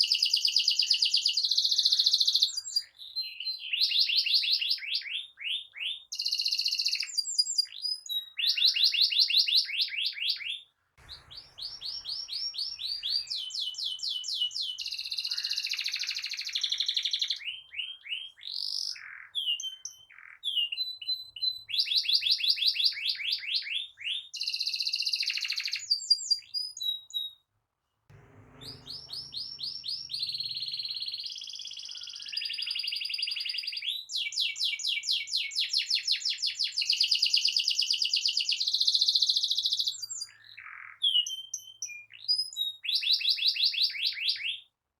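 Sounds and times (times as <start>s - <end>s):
canary singing trills: 28.1s - 35.8s.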